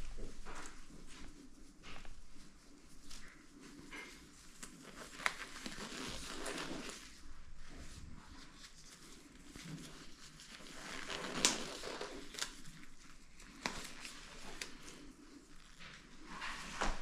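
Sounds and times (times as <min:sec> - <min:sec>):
soft rustling: 0:00.0 - 0:17.0.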